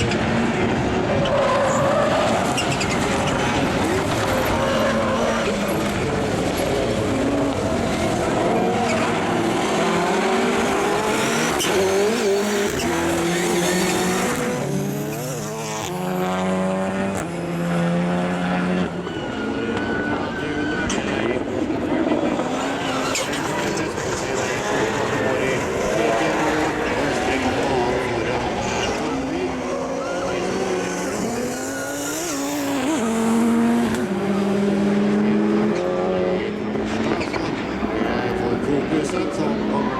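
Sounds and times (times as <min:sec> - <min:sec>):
race car engines revving: 0:00.0 - 0:39.9.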